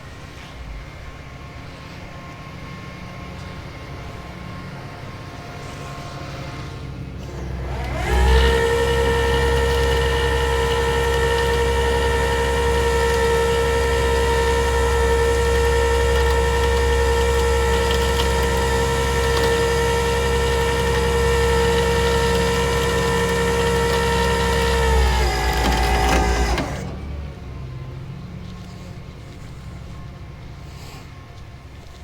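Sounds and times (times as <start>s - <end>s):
hydraulic pump whining: 5.2s - 32.0s
truck engine running: 6.5s - 32.0s.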